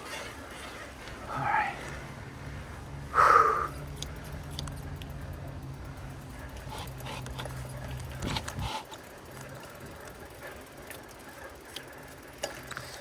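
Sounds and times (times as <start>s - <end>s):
steady low hum: 0.0s - 13.0s
light clicks: 3.9s - 5.4s.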